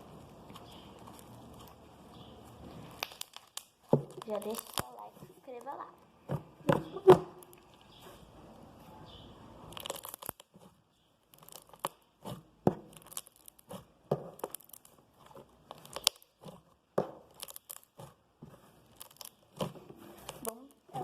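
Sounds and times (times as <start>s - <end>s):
slime crackling and popping: 0.0s - 8.1s, 9.6s - 21.0s.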